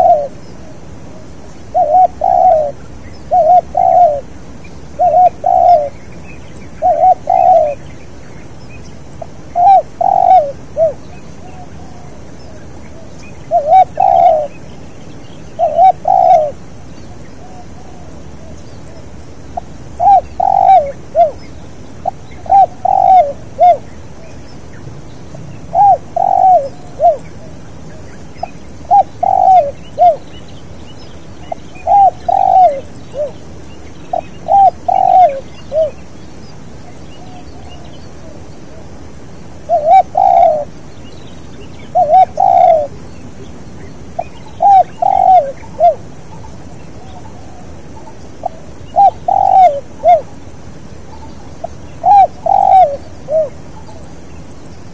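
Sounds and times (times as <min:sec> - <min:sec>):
dove cooing: 0:00.0 - 0:06.0, 0:06.6 - 0:07.9, 0:09.2 - 0:14.7, 0:15.4 - 0:24.4, 0:25.3 - 0:30.3, 0:31.4 - 0:33.5, 0:34.1 - 0:36.0, 0:39.6 - 0:40.9, 0:41.6 - 0:43.5, 0:44.1 - 0:50.4, 0:51.0 - 0:54.2.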